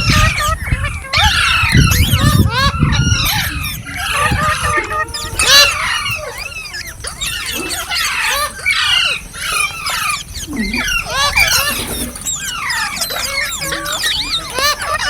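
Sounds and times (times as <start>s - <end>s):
parakeets screeching and chirping: 0.0s - 15.0s.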